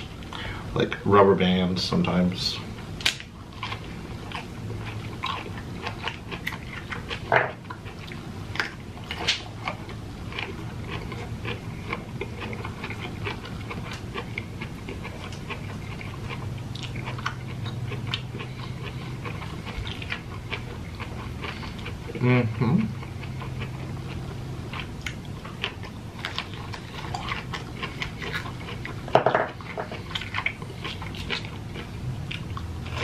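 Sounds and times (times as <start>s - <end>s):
wet chewing smacks and clicks: 7.9s - 21.9s.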